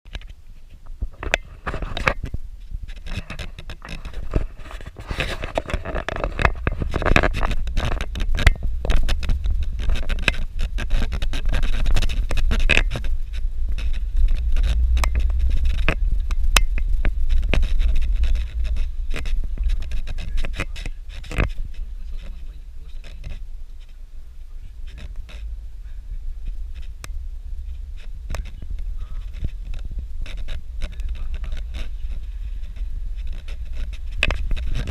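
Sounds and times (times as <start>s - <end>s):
knocks and rattles: 0.1s - 23.9s
vehicle rumble on dirt road: 0.1s - 34.9s.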